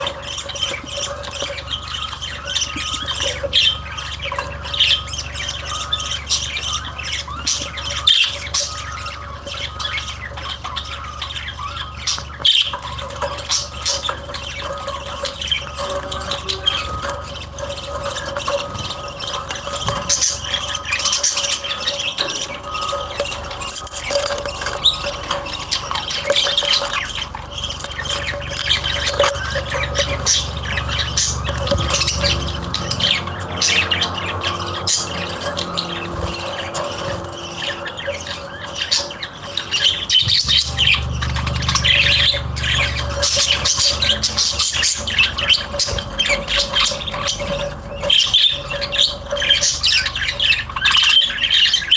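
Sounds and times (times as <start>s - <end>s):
caged birds chirping and squawking: 0.0s - 51.9s
steady hum: 39.5s - 48.0s.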